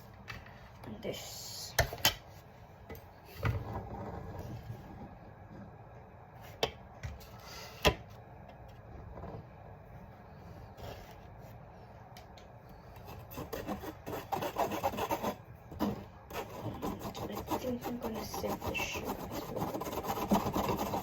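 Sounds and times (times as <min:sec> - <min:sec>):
flour rubbed through a mesh sieve: 0:13.4 - 0:21.0.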